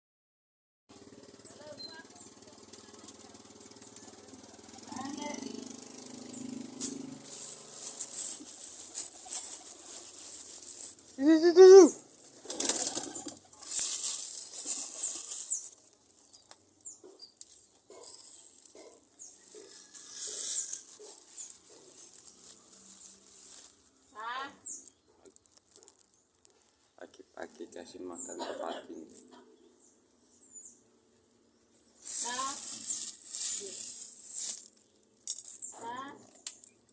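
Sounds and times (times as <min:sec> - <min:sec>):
pigeons flapping wings: 0:07.1 - 0:15.6.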